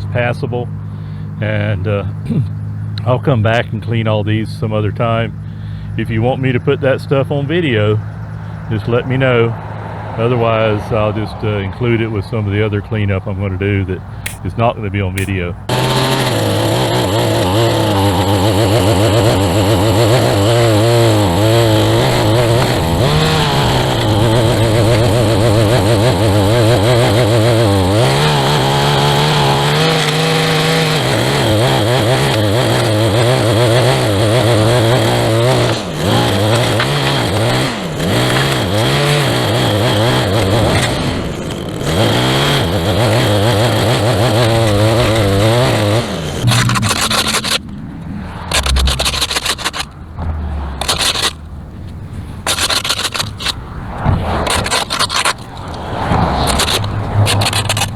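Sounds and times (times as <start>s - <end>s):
string trimmer engine running: 14.1s - 14.5s, 15.2s - 50.0s, 50.8s - 51.4s, 52.4s - 53.6s, 54.4s - 57.9s.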